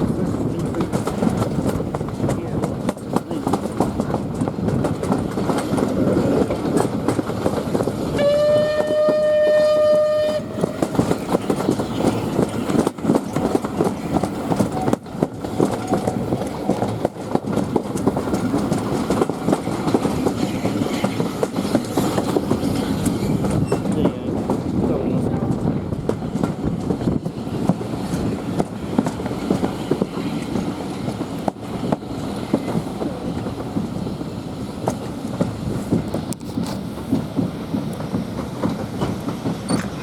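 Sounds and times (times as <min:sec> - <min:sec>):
steam train rumble and wheel clatter: 0:00.0 - 0:40.0
steam locomotive whistle: 0:08.1 - 0:11.1.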